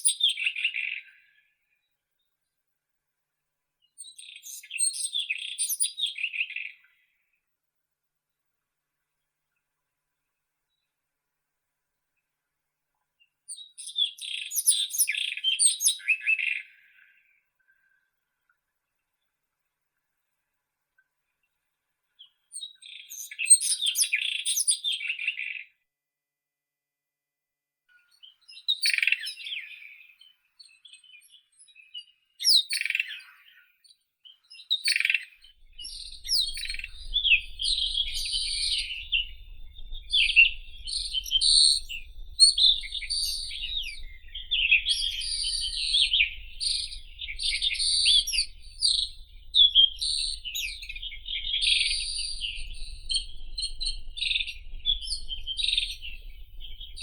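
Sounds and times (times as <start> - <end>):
robin singing: 34.6 - 57.0.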